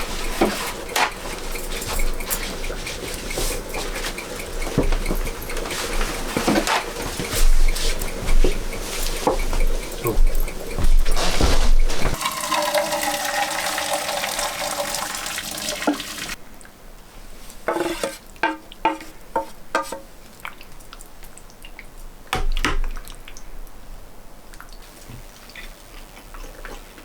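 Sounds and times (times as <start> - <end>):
short knocks: 4.8 - 12.2
tap water running into vessel: 12.2 - 16.4.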